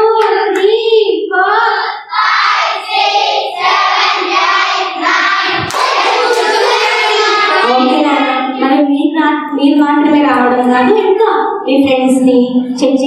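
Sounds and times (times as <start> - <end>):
children singing together: 1.3 - 8.8.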